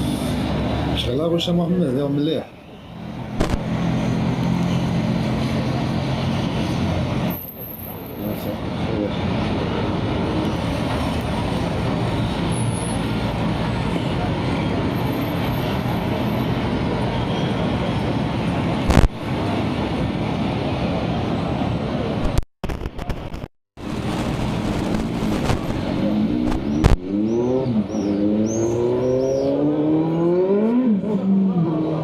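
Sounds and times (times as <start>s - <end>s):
road noise: 0.0s - 32.0s
vehicle engine accelerating: 23.8s - 32.0s.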